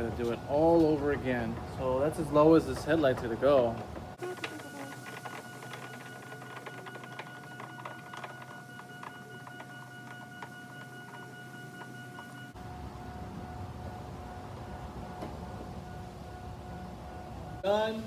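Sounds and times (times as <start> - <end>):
steady high hum: 0.0 - 18.0
rapid irregular clicking: 0.2 - 12.6.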